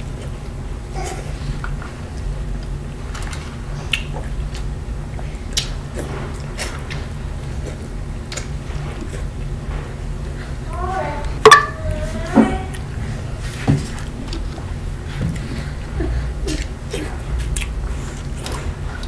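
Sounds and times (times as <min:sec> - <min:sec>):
steady low hum: 0:00.0 - 0:19.0
person chewing food: 0:15.3 - 0:19.0.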